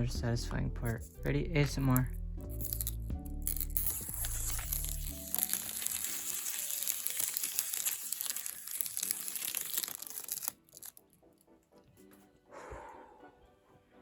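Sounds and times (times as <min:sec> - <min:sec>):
plastic film peeling: 0:02.6 - 0:11.1.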